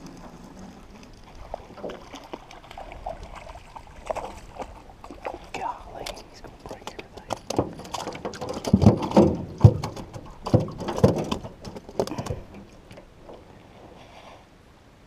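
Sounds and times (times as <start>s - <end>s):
close knocks and thumps: 6.8s - 13.0s.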